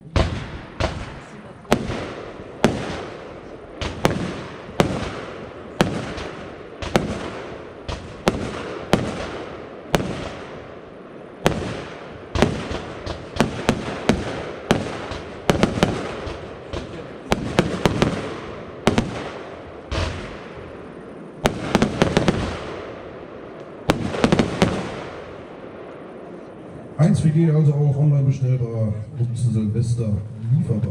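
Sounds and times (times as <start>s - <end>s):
firework battery bangs: 0.0s - 10.7s, 11.4s - 20.7s, 21.4s - 23.2s, 23.8s - 25.7s.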